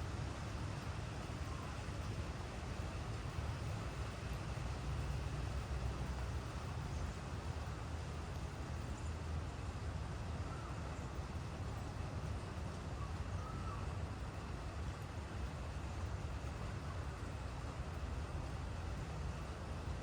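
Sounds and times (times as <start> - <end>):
steady rain falling: 0.0 - 20.0
faint bird calls: 13.0 - 13.9.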